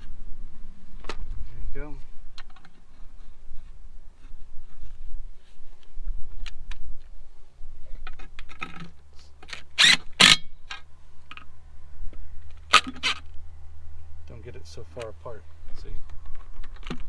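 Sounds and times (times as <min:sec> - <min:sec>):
metallic clicks and scrapes of tools: 0:12.5 - 0:13.4.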